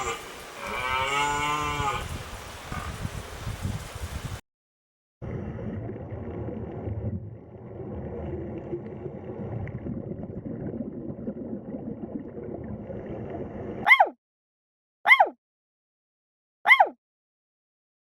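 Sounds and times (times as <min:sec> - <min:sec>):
animal rumbling: 0:00.0 - 0:03.0
animal cry falling in pitch: 0:16.7 - 0:17.0.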